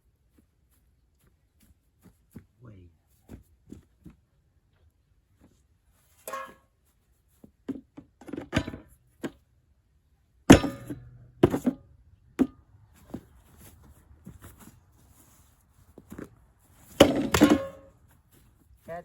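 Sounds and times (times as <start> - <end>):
metal tank being struck: 10.5 - 11.8, 17.0 - 17.9.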